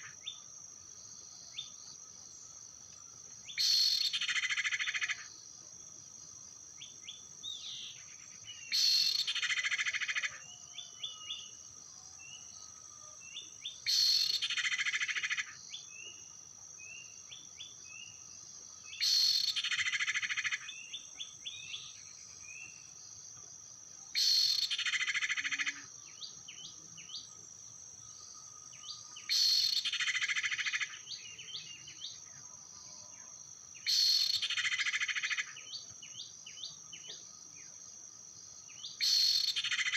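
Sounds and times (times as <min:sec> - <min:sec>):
high insect drone: 0:00.0 - 0:39.9
short bird chirps: 0:08.7 - 0:09.4.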